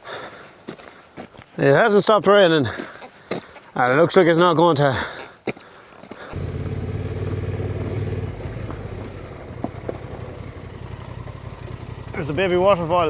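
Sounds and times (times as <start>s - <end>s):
motorcycle engine starting and idling: 6.3s - 13.0s.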